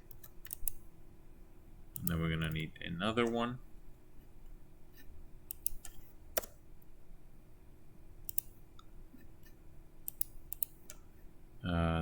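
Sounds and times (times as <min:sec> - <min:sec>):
mouse and keyboard clicks: 0:00.0 - 0:00.8, 0:05.0 - 0:06.6, 0:08.3 - 0:08.6, 0:09.2 - 0:11.1
faint steady hum: 0:00.0 - 0:12.0.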